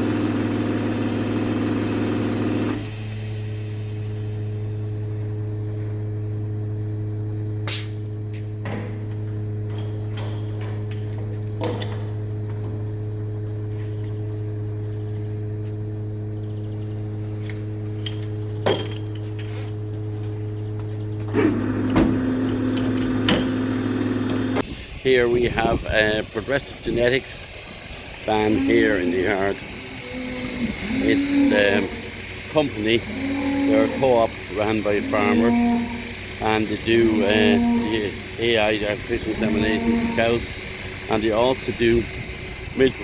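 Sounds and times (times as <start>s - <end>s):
louder second engine: 0.0s - 5.1s, 21.2s - 24.6s.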